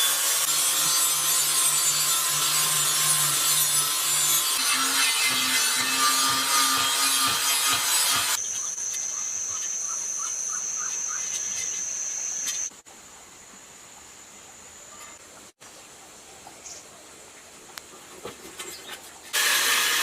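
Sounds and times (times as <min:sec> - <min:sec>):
rasping sawing tool noise: 0:00.0 - 0:08.4.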